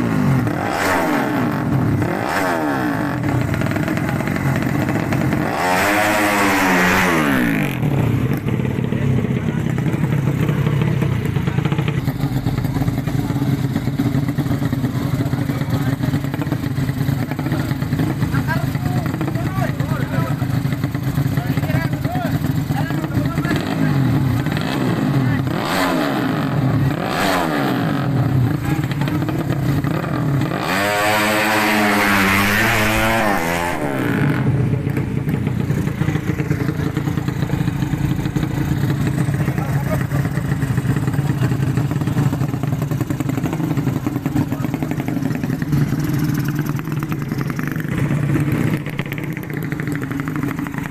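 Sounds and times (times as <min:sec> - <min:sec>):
motorcycle engine idling roughly: 0:03.1 - 0:05.5, 0:07.7 - 0:25.5, 0:28.1 - 0:30.5, 0:34.2 - 0:50.9.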